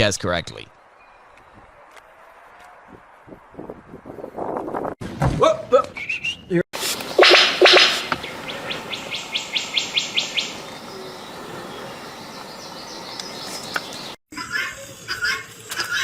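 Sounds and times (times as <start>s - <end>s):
faint outdoor background: 0.0s - 16.0s
bird chirping: 6.9s - 14.2s.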